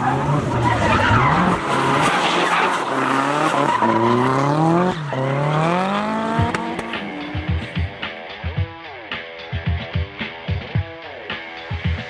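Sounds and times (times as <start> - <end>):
tyres squealing: 0.0 - 7.2
race car engine revving: 0.0 - 8.2.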